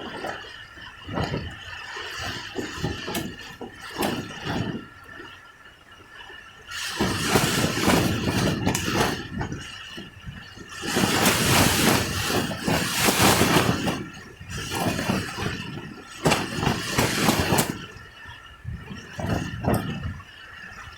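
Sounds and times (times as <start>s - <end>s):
gusting wind: 6.7s - 20.9s
rain: 10.8s - 17.8s.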